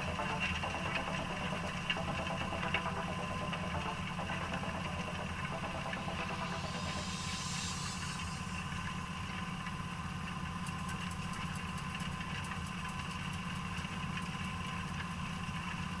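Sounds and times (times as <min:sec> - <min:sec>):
high whine: 0:00.0 - 0:10.8
tractor diesel engine running: 0:00.0 - 0:16.0.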